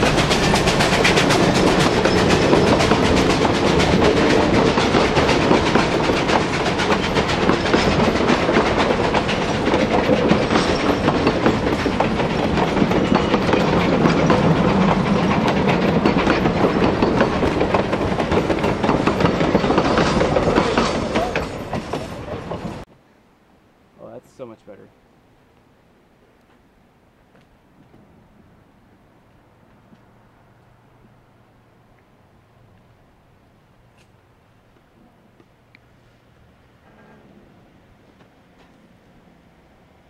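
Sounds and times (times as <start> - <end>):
train wheels clattering over rail joints: 0.0 - 22.9.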